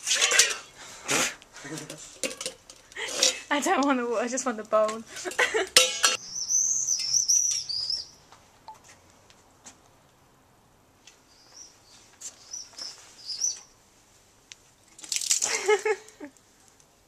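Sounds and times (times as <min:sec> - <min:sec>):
small bird warbling chirps: 0:06.3 - 0:08.2.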